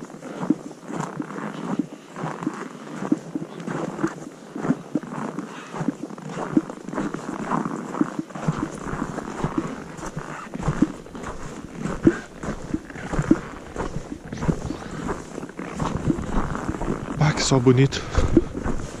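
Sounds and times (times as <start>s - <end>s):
footsteps crunching in snow: 0.0s - 19.0s
microphone handling: 7.9s - 19.0s
clothing rustling: 18.0s - 19.0s.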